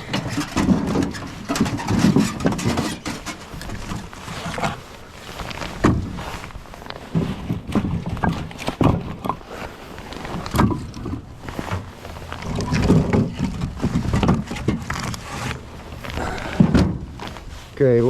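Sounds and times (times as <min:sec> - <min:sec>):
firewood knocking together: 0:07.1 - 0:09.7, 0:10.3 - 0:17.4.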